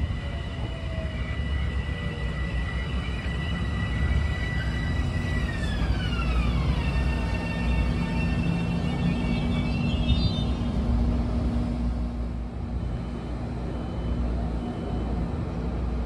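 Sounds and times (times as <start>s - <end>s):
electric train rumble: 0.0s - 16.0s.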